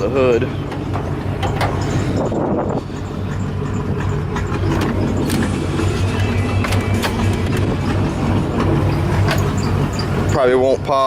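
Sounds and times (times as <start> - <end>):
vee eight engine idling: 0.0 - 11.0.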